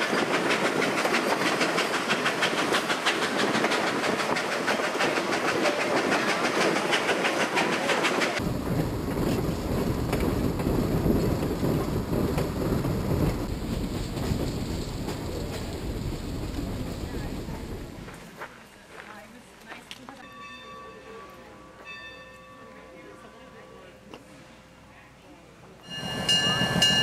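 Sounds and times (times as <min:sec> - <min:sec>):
wheels clicking over rails: 0:00.0 - 0:18.2
train cars rolling on track: 0:00.0 - 0:27.0
heavy low rumble: 0:08.4 - 0:18.3.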